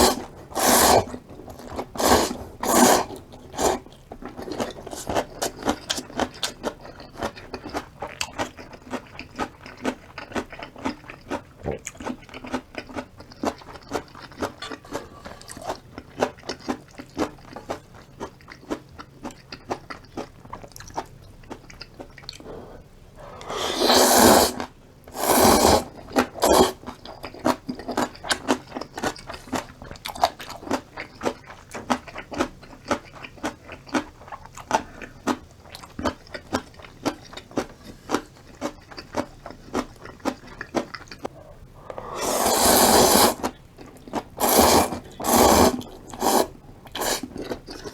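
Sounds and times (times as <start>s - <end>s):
loud noodle slurps: 0.0s - 3.9s, 22.6s - 26.8s, 41.8s - 43.5s, 44.4s - 47.9s
chewing and crunching: 0.0s - 23.5s, 25.8s - 47.9s.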